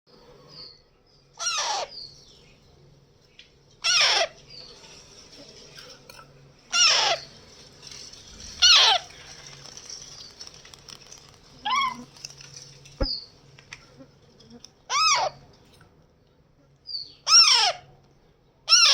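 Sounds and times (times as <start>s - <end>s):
parrot calling: 1.4s - 2.0s, 3.8s - 4.4s, 6.7s - 7.3s, 8.6s - 9.2s, 11.6s - 12.1s, 14.9s - 15.4s, 17.2s - 17.9s, 18.7s - 18.9s.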